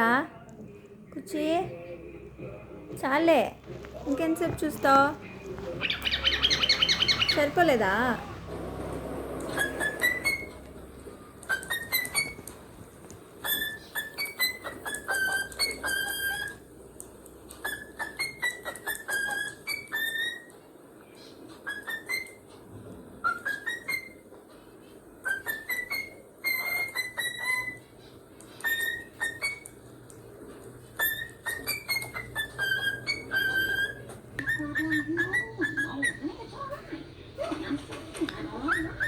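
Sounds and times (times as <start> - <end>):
cockatiel whistling a tune: 5.8 - 7.5, 9.5 - 10.8, 11.4 - 12.6, 13.4 - 16.6, 17.6 - 20.6, 21.6 - 22.6, 23.2 - 24.2, 25.2 - 29.8, 31.0 - 36.3, 38.4 - 39.0.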